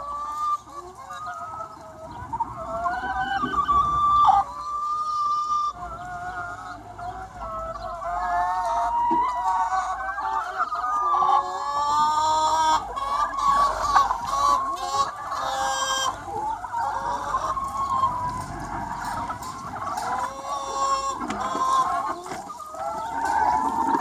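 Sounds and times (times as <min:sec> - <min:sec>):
chickens clucking and calling: 0:00.0 - 0:24.0.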